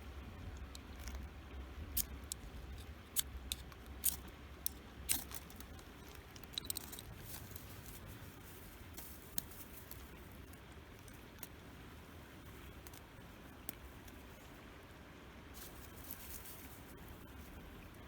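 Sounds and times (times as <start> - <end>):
low steady rumble: 0.0 - 18.0
fire-starter rod scraping: 5.1 - 8.0.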